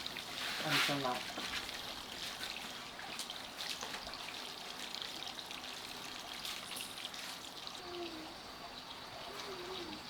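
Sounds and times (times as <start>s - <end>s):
water trickling: 0.0s - 10.0s.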